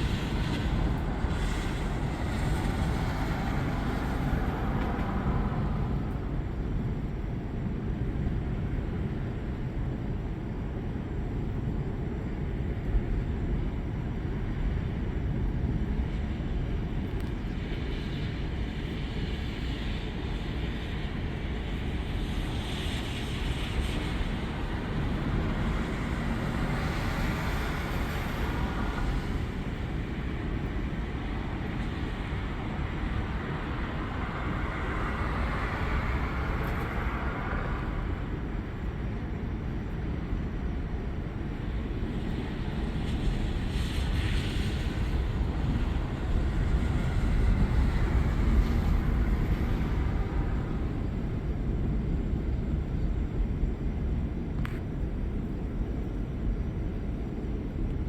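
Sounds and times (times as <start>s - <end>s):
rain hiss: 0.0s - 6.3s, 16.0s - 53.0s
wind and rain rushing: 0.0s - 58.0s.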